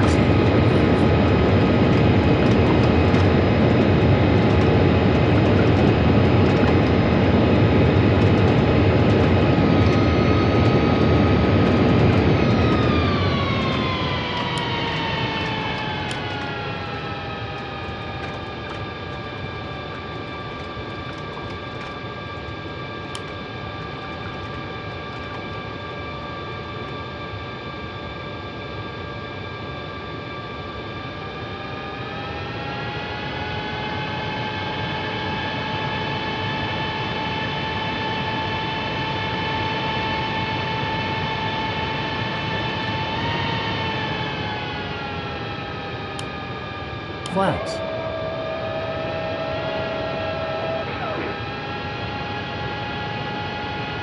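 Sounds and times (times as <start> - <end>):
jet engine whine: 0.0 - 54.0.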